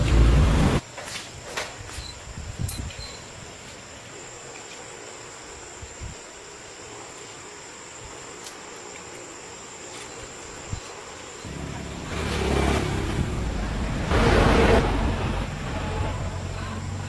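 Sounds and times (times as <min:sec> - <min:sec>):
car engine running: 0:00.0 - 0:00.8, 0:11.5 - 0:17.0.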